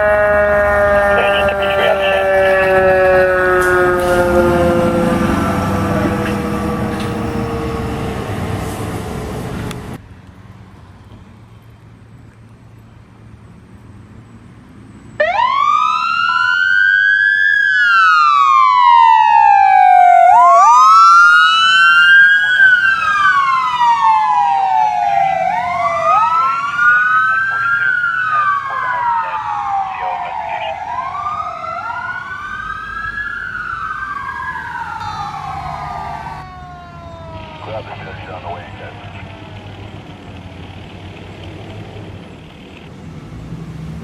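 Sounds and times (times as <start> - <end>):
lower siren-like tone: 0.0 - 9.4, 15.2 - 40.3
emergency siren wailing: 0.0 - 10.0, 15.2 - 41.3
vehicle noise: 0.0 - 44.0.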